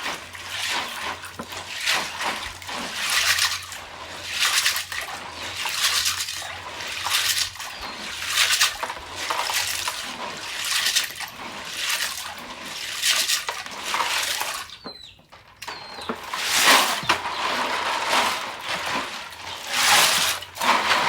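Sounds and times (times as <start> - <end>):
water sloshing and splashing: 0.0 - 14.9.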